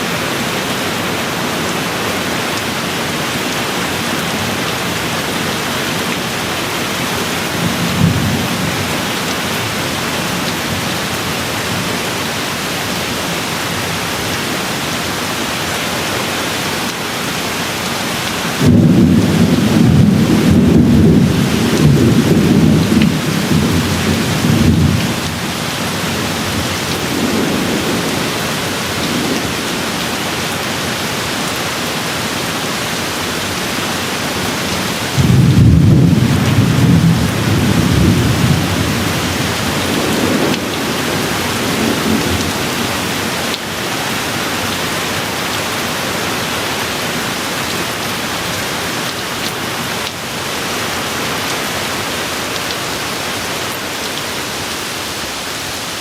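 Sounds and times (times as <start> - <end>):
steady rain falling: 0.0 - 56.0
rolling thunder: 18.6 - 30.0, 35.2 - 42.9.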